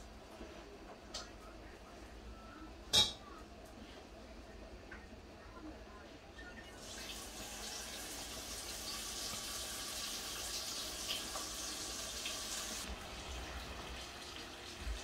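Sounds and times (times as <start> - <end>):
fish roe sizzling in hot oil: 6.8 - 15.0.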